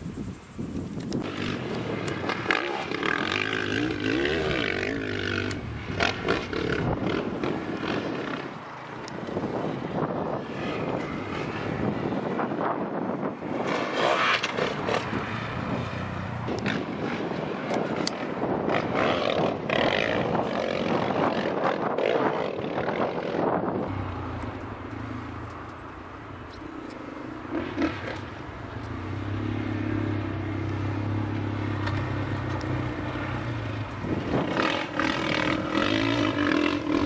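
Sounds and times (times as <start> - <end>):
motorcycle engine revving: 1.2 - 8.7, 13.2 - 37.0.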